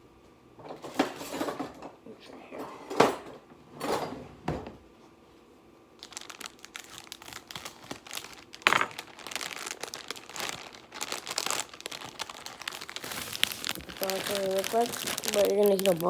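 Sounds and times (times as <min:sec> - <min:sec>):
plastic wrapper crinkling and tearing: 0:06.0 - 0:16.0.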